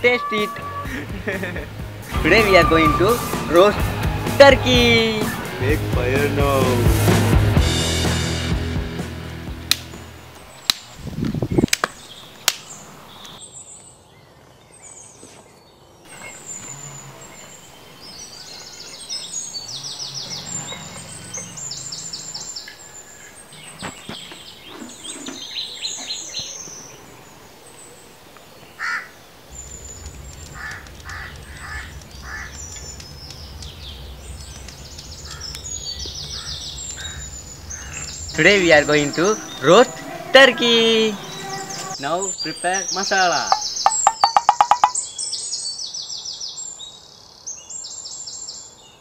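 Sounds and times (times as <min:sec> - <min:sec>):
small birds chirping: 0:10.1 - 0:40.2, 0:41.0 - 0:49.0
sticks knocking: 0:43.5 - 0:45.0.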